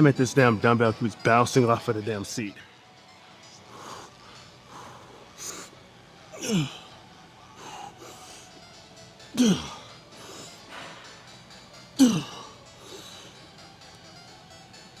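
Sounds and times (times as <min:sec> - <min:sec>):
man grunting with effort: 0:06.3 - 0:07.0, 0:09.4 - 0:09.9, 0:12.0 - 0:12.5.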